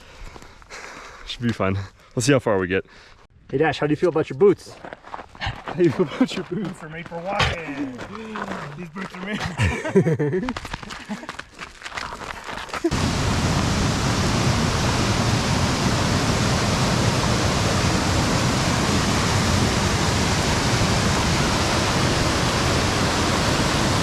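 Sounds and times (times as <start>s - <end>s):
rush of falling water: 12.9s - 24.0s.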